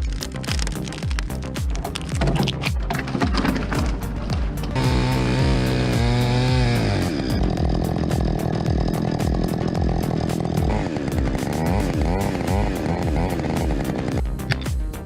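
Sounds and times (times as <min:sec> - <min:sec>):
background music with steady beat: 0:00.0 - 0:15.0
chainsaw engine revving: 0:03.4 - 0:14.3.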